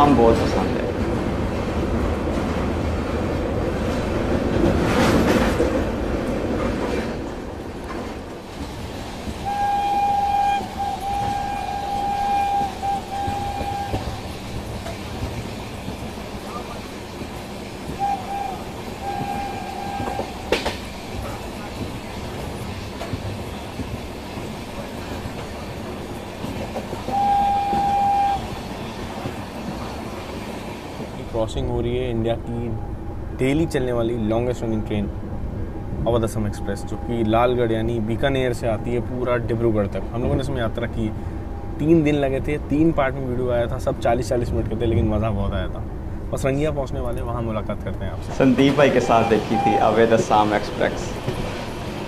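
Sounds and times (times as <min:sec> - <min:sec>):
train wheels rumbling: 0:00.0 - 0:52.0
train horn blast: 0:09.4 - 0:14.3, 0:17.9 - 0:20.8, 0:27.0 - 0:28.7, 0:48.8 - 0:50.4.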